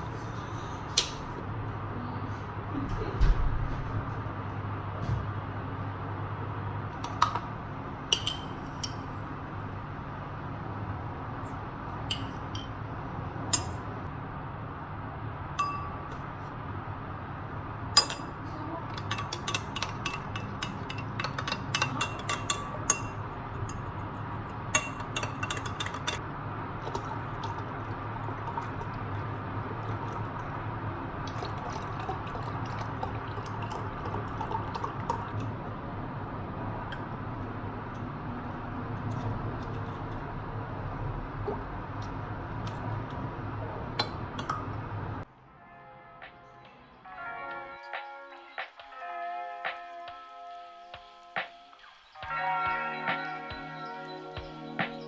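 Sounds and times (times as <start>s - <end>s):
steady low hum: 0.0s - 45.3s
glass and ceramic tableware clinking: 8.2s - 9.1s, 12.1s - 12.8s, 13.6s - 13.9s, 15.6s - 16.3s, 18.0s - 26.2s.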